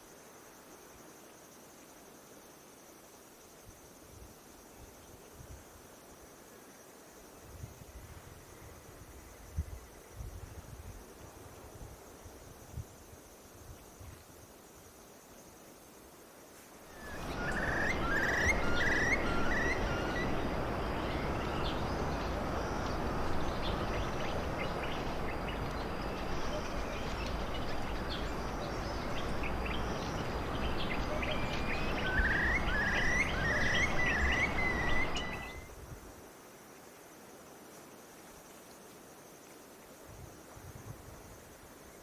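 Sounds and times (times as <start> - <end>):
faint bird chirps: 16.9 - 35.8
bird calling short whistled notes: 17.0 - 21.6, 31.1 - 35.7
loud steady rushing noise: 17.0 - 35.5.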